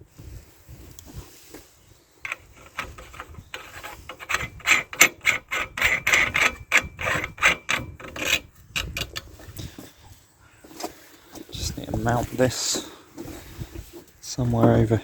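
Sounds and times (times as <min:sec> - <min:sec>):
short scraping strokes: 0:02.2 - 0:09.8.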